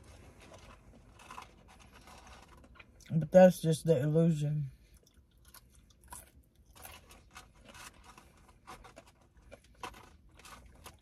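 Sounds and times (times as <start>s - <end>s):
small rustles: 0.0s - 2.9s
person chewing french fries: 0.0s - 3.1s, 4.8s - 11.0s.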